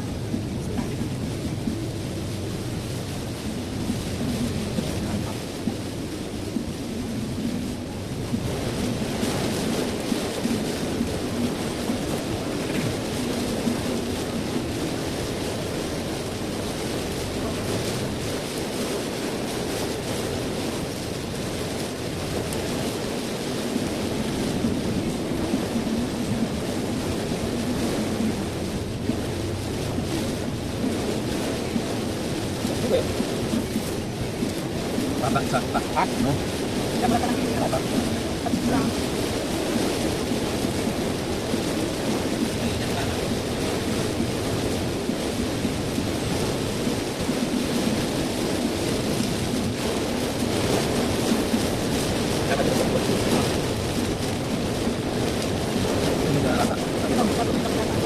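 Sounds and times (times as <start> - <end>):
heavy rain on car body: 0.0 - 58.0
road and tyre noise: 0.0 - 58.0
car engine hum: 32.6 - 39.0.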